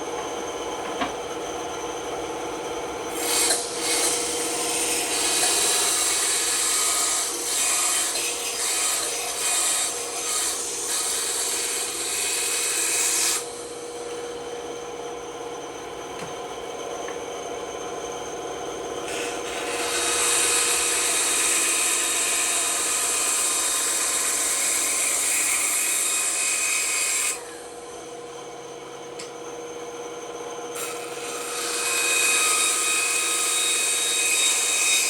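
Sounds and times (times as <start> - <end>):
bandsaw humming: 3.0 - 17.8, 18.7 - 28.5, 30.7 - 35.0
saw blade cutting wood: 3.1 - 13.7, 19.1 - 27.7, 30.8 - 35.0.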